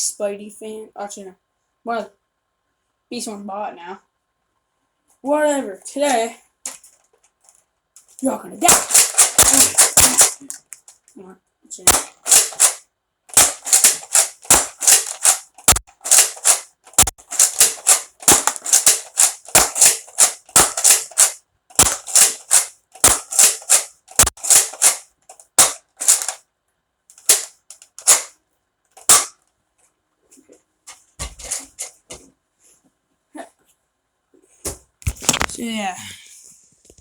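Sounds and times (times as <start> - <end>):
toy blaster popping: 8.6 - 10.9, 11.9 - 26.4, 27.1 - 28.3, 29.0 - 29.3.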